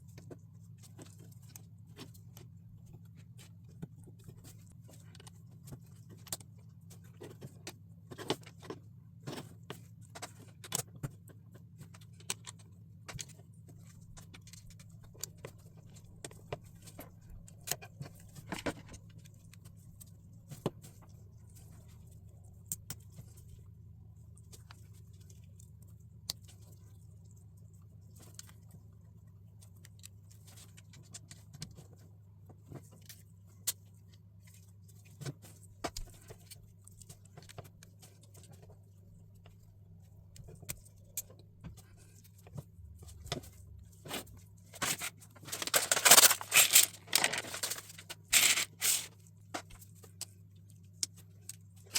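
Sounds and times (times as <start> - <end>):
plastic bricks clicking: 45.6 - 49.1.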